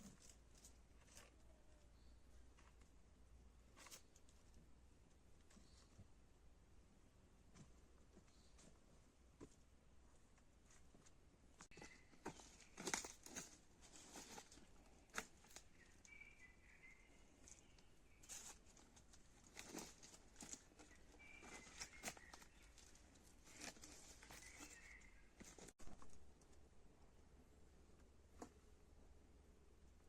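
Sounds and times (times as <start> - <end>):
rustles and clicks of handling: 0.0 - 3.0, 3.6 - 6.1, 7.4 - 16.2, 17.0 - 26.6.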